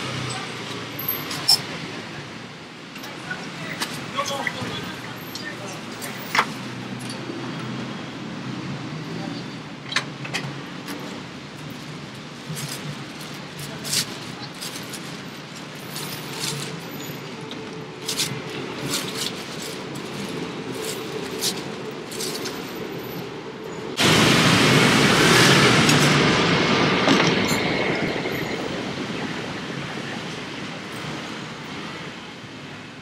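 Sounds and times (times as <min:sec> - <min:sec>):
elevated train passing: 0:15.6 - 0:33.0.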